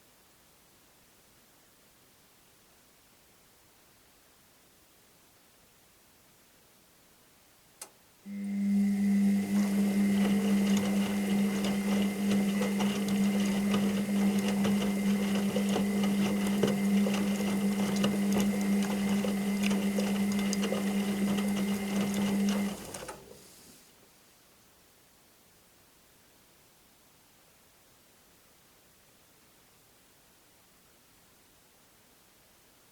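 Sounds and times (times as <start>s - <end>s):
washing machine motor humming: 8.3s - 23.7s.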